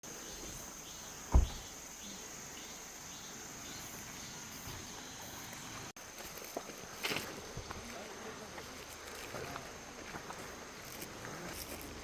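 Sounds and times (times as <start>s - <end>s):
insects chirring: 0.0s - 12.0s
sharp low thump: 1.3s - 1.7s.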